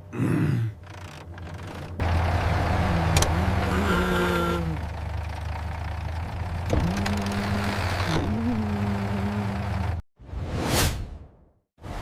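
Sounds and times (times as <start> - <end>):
road roller engine drone: 0.7 - 10.0
wavering engine tone: 2.0 - 10.0.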